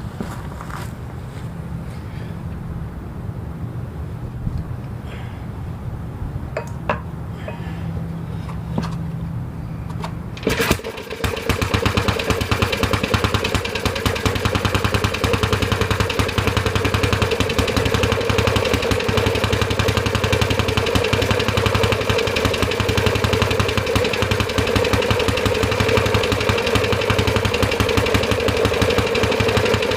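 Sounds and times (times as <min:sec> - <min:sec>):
small engine starting and running: 0:09.9 - 0:29.9.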